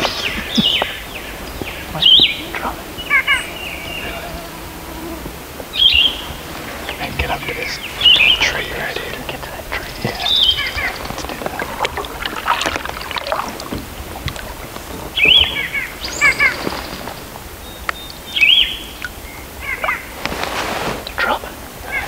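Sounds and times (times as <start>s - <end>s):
canoe paddling: 0.0s - 22.0s
songbird singing: 0.0s - 22.0s.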